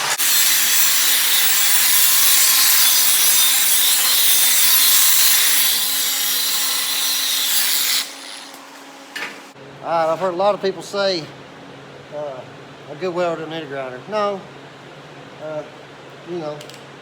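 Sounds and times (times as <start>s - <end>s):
angle grinder grinding steel: 0.0s - 8.7s.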